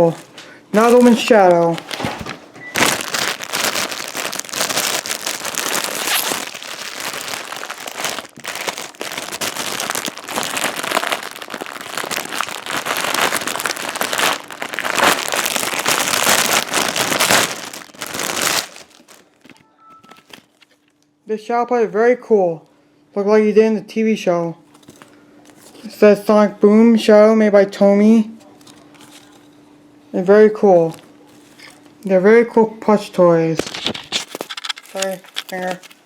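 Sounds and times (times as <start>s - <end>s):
plastic packaging crinkling: 0.0s - 21.0s, 24.7s - 25.9s, 28.5s - 29.5s, 30.8s - 32.0s, 33.6s - 36.0s.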